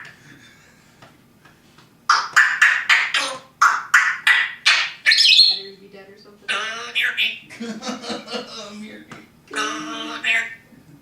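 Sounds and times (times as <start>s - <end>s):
parrot making harsh calls: 2.1s - 5.6s, 6.5s - 7.4s, 9.5s - 10.6s.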